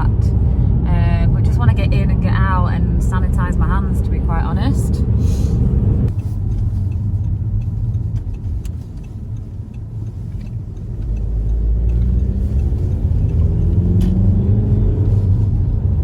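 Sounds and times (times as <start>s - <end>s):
car engine and road rumble: 0.0s - 16.0s
faint regular ticking: 6.1s - 13.6s.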